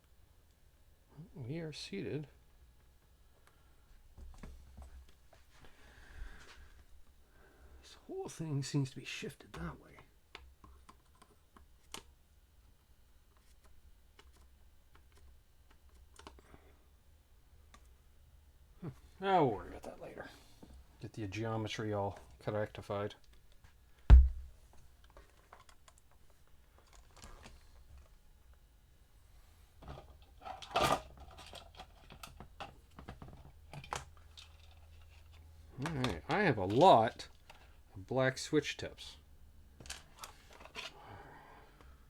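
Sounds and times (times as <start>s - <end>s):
rustling of small parts: 23.2s - 28.2s, 29.8s - 36.0s, 39.8s - 41.0s.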